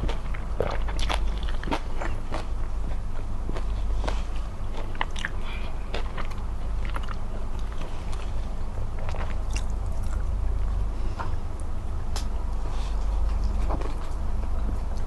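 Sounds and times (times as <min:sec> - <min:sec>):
chewing and biting food: 0:00.0 - 0:10.4
steady low hum: 0:00.0 - 0:15.0.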